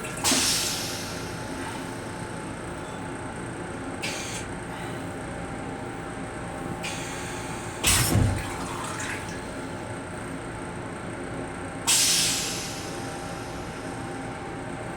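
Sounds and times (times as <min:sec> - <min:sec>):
train toilet flushing: 0:00.0 - 0:03.1, 0:06.6 - 0:10.0, 0:11.8 - 0:14.1.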